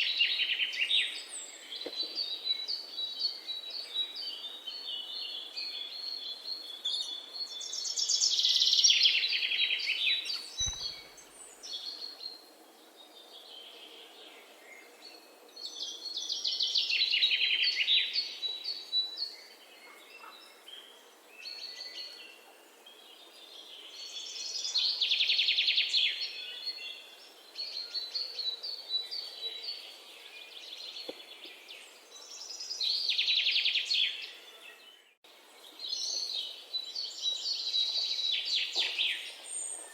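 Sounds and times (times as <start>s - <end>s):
quiet bird chirps: 0.0s - 39.9s.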